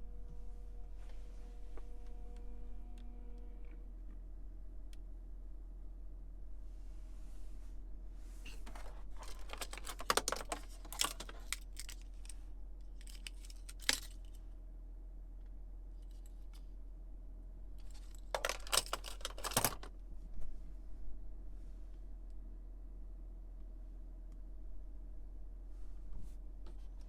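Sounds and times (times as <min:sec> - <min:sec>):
steady low hum: 0:00.0 - 0:27.0
small clicks and rattles: 0:08.5 - 0:14.4, 0:17.8 - 0:19.9.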